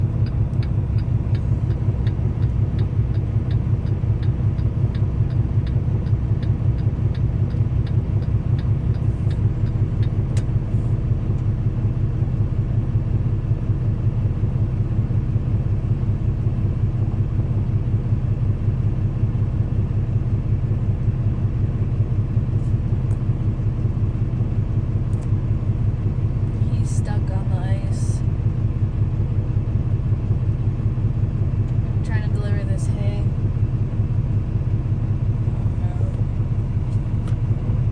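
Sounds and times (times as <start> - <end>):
truck engine droning: 0.0 - 37.9
light ticking: 0.2 - 10.5.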